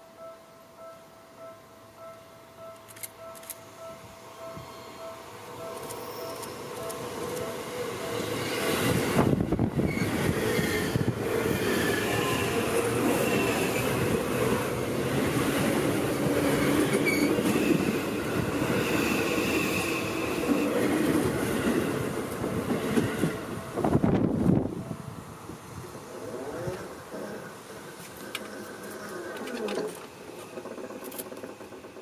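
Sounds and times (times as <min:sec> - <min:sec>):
train wheels rumbling on rail: 0:05.6 - 0:25.0, 0:26.2 - 0:32.0.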